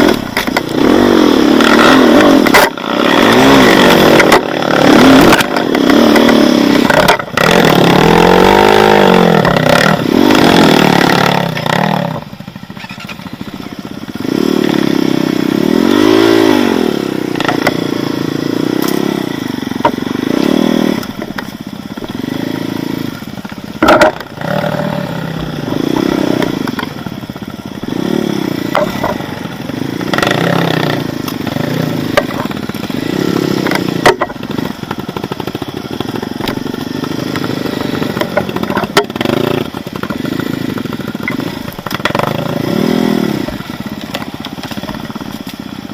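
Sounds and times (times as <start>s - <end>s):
motorcycle engine revving: 0.0s - 45.9s
sharp knocks and clatters: 23.5s - 24.4s, 28.6s - 29.3s, 33.6s - 35.3s, 38.2s - 40.2s, 41.2s - 42.4s.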